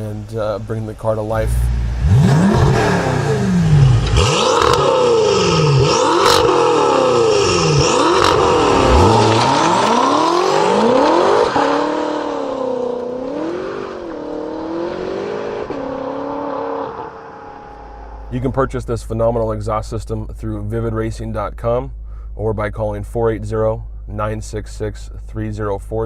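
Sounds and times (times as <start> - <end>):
exhaust cracks: 0.0 - 14.7
car engine revving hard: 1.4 - 18.3.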